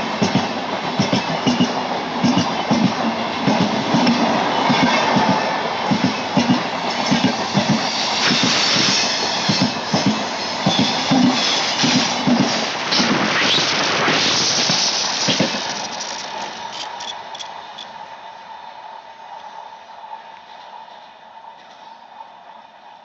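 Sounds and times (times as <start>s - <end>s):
train rushing noise: 0.0s - 23.0s
train wheels knocking over rail joints: 0.2s - 17.4s.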